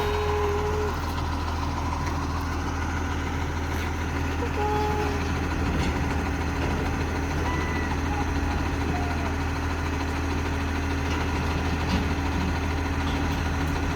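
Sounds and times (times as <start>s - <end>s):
diesel engine idling: 0.0s - 13.9s.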